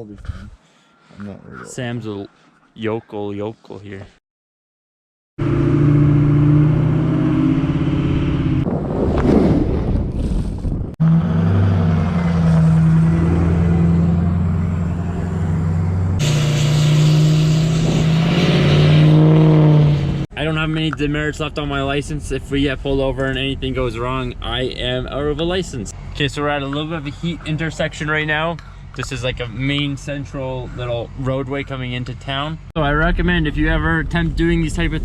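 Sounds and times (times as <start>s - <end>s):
road noise: 5.4s - 10.2s, 11.0s - 35.0s
truck engine running: 11.0s - 33.2s.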